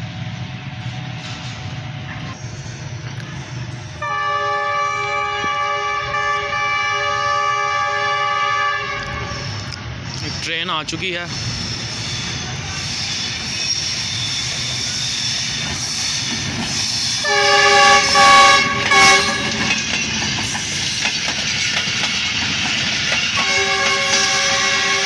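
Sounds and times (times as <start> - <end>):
train wheels rumbling on rails: 0.0 - 25.0
locomotive horn: 4.0 - 9.7, 17.2 - 19.7, 23.4 - 25.0.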